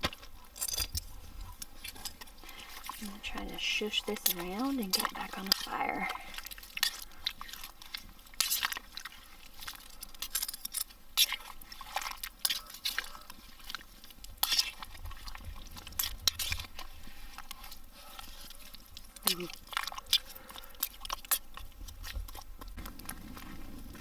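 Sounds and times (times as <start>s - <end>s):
spoon scraping and clinking metal pot: 14.4s - 14.8s.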